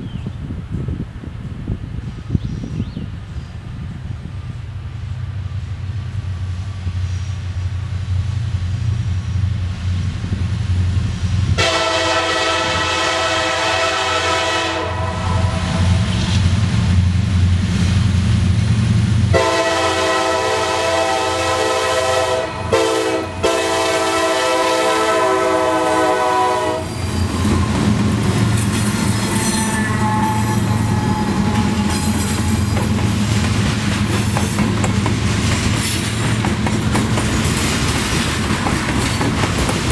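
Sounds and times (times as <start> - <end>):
diesel locomotive engine running: 3.1 - 39.9
locomotive horn blasts: 11.6 - 16.1, 19.3 - 27.8, 29.3 - 32.7
train wheels clattering on rails: 26.9 - 39.9.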